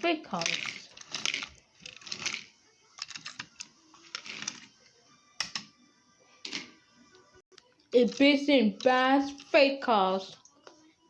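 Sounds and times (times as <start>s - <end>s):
toy train clicks and rustles: 0.3s - 4.7s.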